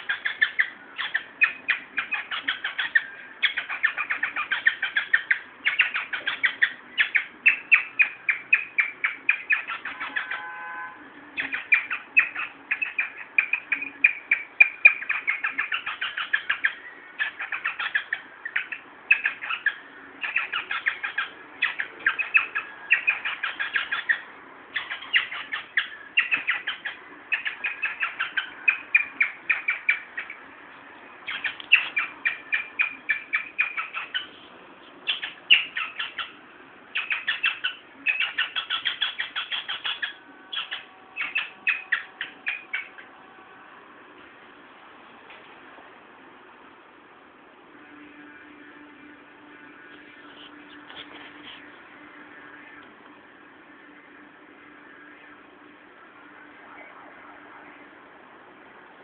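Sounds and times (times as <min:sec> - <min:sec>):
bird chirping rapidly: 0:00.0 - 0:10.8, 0:11.4 - 0:30.4, 0:31.2 - 0:43.2.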